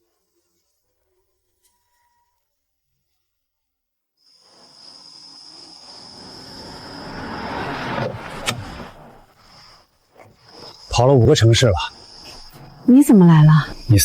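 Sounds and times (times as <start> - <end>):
crickets chirring: 4.2 - 14.0.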